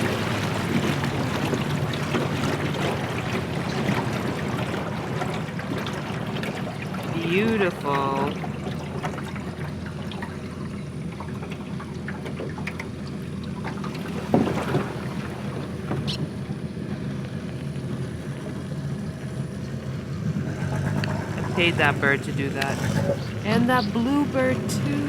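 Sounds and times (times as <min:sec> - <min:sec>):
outboard motor running: 0:00.0 - 0:25.0
water rushing along hull: 0:00.0 - 0:25.0.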